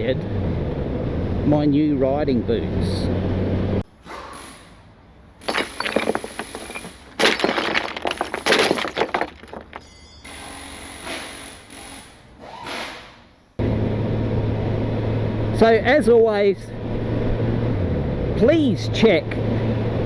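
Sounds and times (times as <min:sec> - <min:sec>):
cracking shattering sounds: 0:05.5 - 0:09.8.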